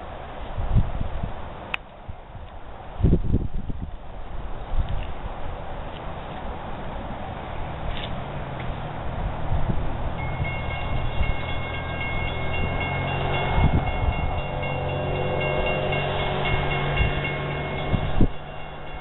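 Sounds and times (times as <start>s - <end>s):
diesel locomotive engine drone: 0.0s - 19.0s
high steady tones: 10.2s - 19.0s.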